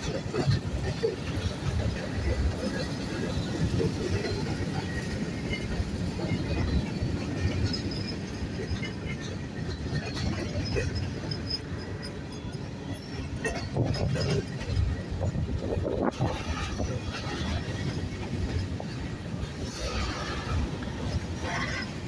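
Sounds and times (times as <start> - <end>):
steel wheels rumbling on rails: 0.0 - 22.0.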